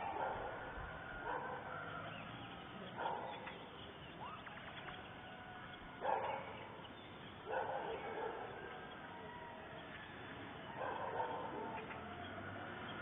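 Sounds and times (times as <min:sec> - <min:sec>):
dog barking: 0:00.0 - 0:01.7, 0:03.0 - 0:03.5, 0:06.0 - 0:06.8, 0:07.4 - 0:08.7, 0:10.7 - 0:11.9.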